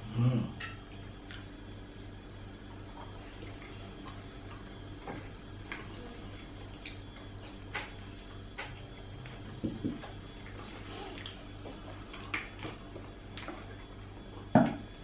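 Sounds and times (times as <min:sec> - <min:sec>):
steady low hum: 0:00.0 - 0:15.0
chewing and mouth clicks: 0:10.0 - 0:14.0.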